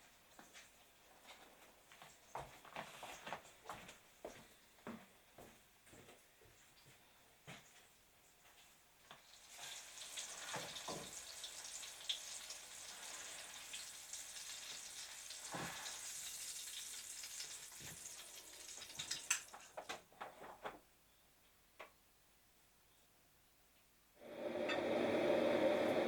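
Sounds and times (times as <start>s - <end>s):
food sizzling in a frying pan: 9.1s - 19.8s.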